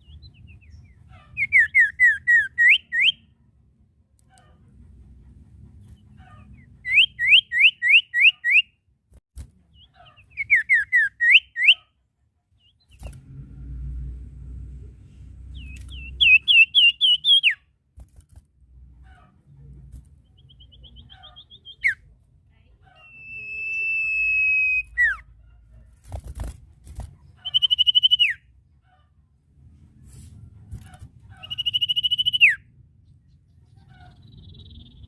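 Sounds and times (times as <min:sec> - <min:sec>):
bird whistling: 0:01.4 - 0:03.2, 0:06.8 - 0:08.7, 0:10.3 - 0:11.8, 0:15.6 - 0:17.6, 0:20.4 - 0:22.0, 0:23.0 - 0:25.2, 0:27.4 - 0:28.4, 0:31.4 - 0:32.6, 0:34.3 - 0:35.0
low rumble: 0:13.1 - 0:16.3.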